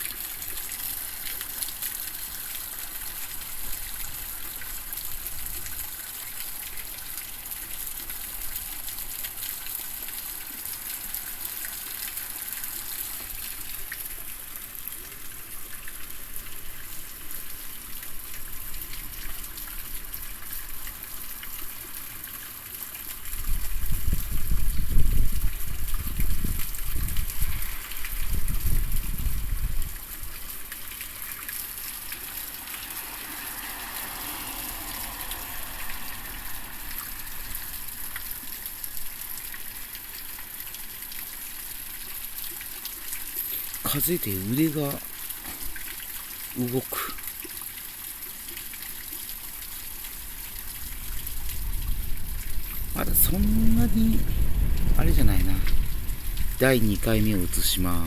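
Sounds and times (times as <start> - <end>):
heavy rain pouring: 0.0 - 58.0
wind buffeting microphone: 23.4 - 30.0, 50.8 - 57.6.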